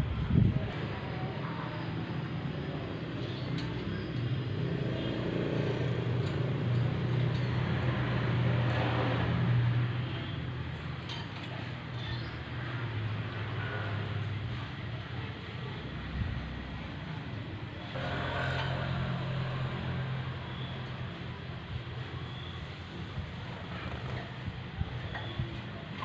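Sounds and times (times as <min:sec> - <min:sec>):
low engine drone: 0:17.8 - 0:21.8.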